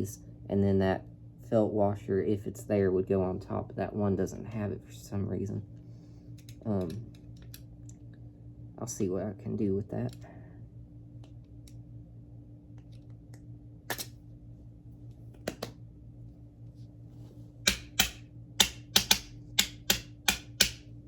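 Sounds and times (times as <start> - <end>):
small hard parts tapping: 17.7 - 20.8.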